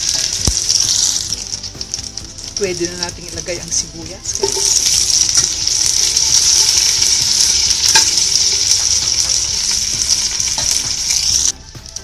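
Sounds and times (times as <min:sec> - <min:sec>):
food sizzling in hot oil: 0:00.0 - 0:12.0
utensil clicking against pot: 0:04.4 - 0:10.9.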